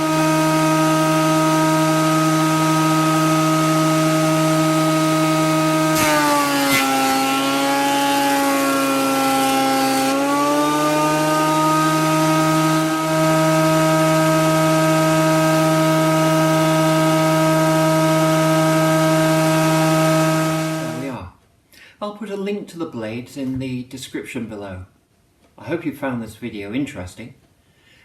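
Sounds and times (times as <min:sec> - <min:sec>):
planer thicknesser motor running: 0:00.0 - 0:21.2.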